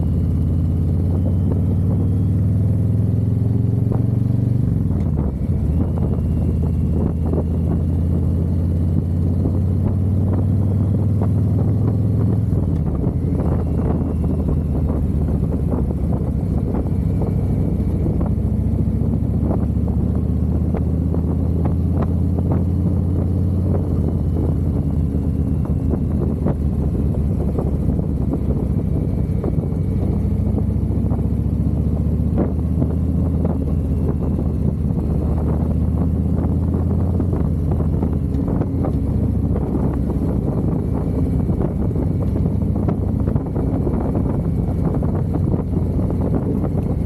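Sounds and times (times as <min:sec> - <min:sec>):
motorcycle engine running: 0:00.0 - 0:47.0
wind noise on microphone: 0:03.8 - 0:47.0.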